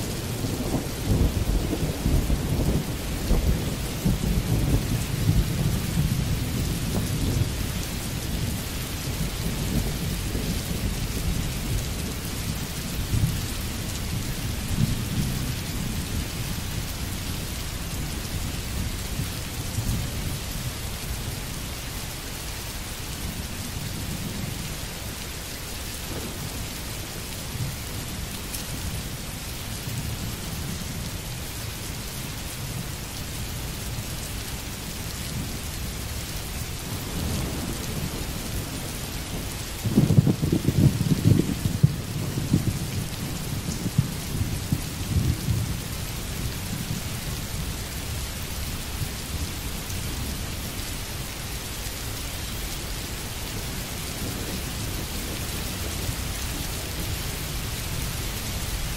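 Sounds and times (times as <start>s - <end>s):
rumble of thunder: 0.0s - 21.4s, 25.8s - 31.1s, 35.1s - 50.5s
steady rain: 0.0s - 58.9s.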